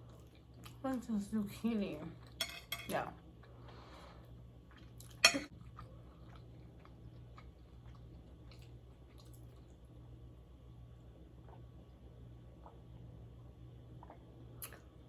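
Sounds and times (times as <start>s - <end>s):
steady low hum: 0.0s - 15.0s
close-up chewing of food: 4.6s - 9.9s
wet mouth clicks: 14.0s - 14.8s.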